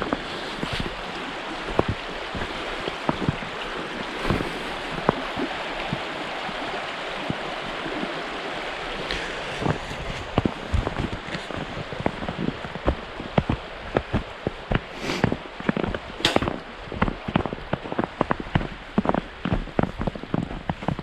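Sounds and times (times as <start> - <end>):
rush of running water: 0.0 - 21.0.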